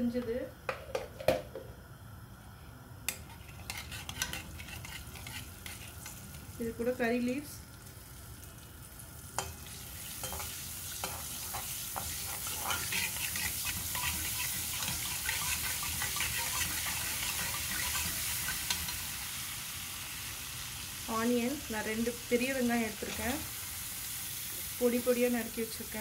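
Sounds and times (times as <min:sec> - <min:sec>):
metal spatula scraping pan: 0:03.2 - 0:06.2, 0:10.2 - 0:19.0
leaves sizzling in hot oil: 0:03.2 - 0:26.0.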